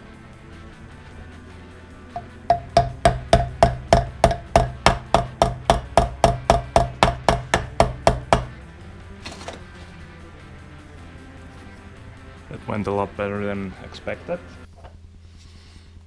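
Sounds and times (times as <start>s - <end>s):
hammer taps on metal: 2.2s - 8.6s.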